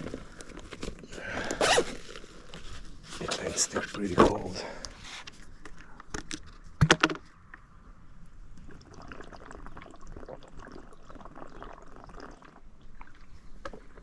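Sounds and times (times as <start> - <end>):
water sloshing in a bottle: 8.5 - 14.0.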